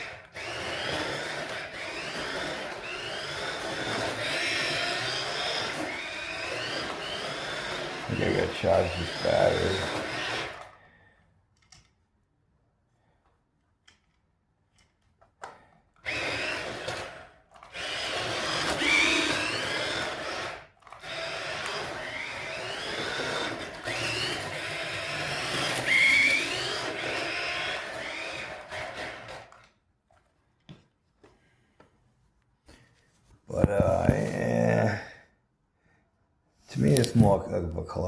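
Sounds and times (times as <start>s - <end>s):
toy car electric motor whining: 0.0s - 11.1s, 14.8s - 30.3s, 33.6s - 35.1s.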